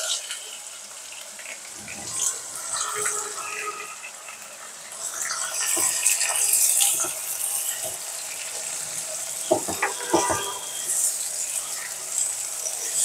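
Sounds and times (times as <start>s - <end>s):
vegetables sizzling in hot oil: 0.0s - 13.0s
spatula knocking against pan: 9.5s - 10.6s.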